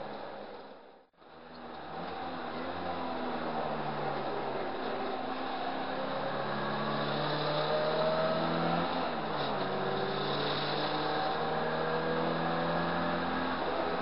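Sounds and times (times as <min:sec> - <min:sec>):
car engine revving hard: 0:05.1 - 0:14.0.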